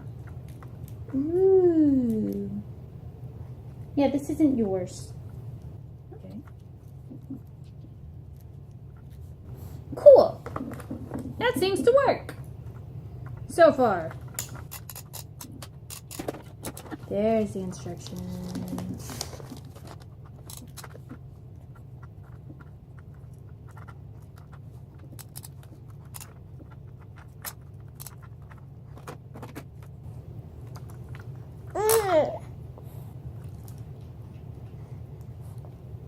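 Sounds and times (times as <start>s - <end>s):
handling clicks and rustles: 12.4s - 32.0s
baby babbling cry: 31.8s - 32.5s.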